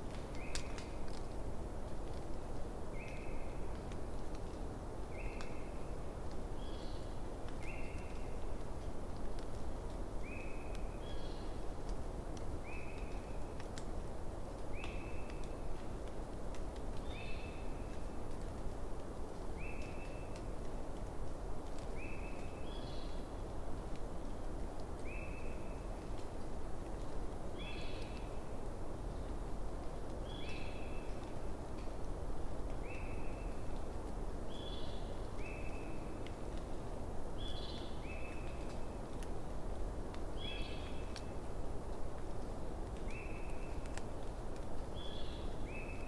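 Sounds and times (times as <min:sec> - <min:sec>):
campfire crackling: 0:00.0 - 0:22.0, 0:22.9 - 0:46.0
campfire crackling and popping: 0:11.6 - 0:17.1.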